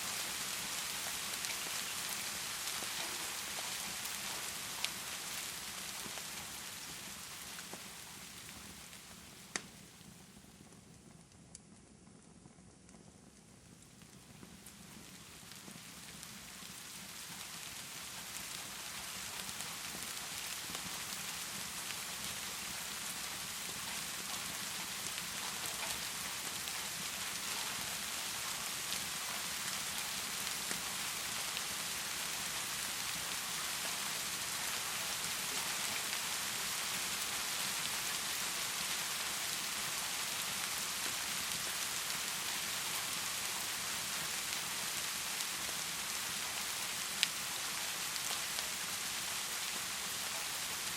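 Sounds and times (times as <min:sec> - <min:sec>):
heavy rain pouring: 0:00.0 - 0:07.6, 0:18.0 - 0:50.9
raindrop ticks: 0:20.4 - 0:37.0.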